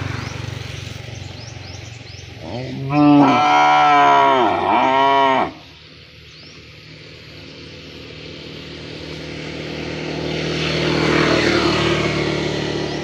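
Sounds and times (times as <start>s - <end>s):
cow mooing: 2.4s - 5.6s.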